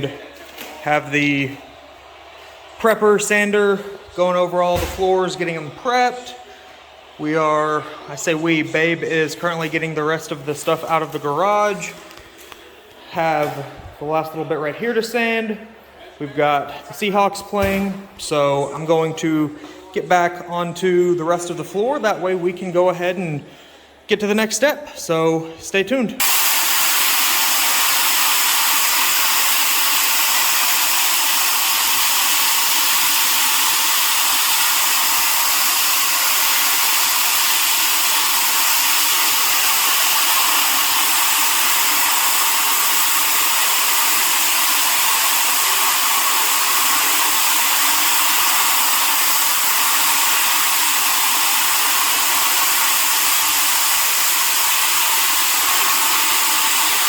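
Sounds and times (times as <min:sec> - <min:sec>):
floor sander whirring: 0:26.2 - 0:57.0.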